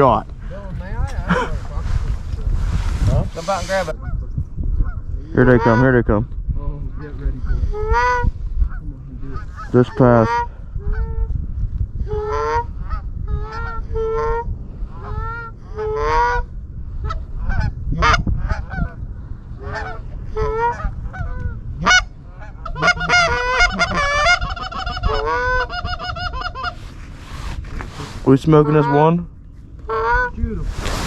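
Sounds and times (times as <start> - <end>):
geese honking: 5.4 - 6.0, 7.7 - 11.3, 19.6 - 27.0, 28.3 - 29.2, 29.9 - 30.4.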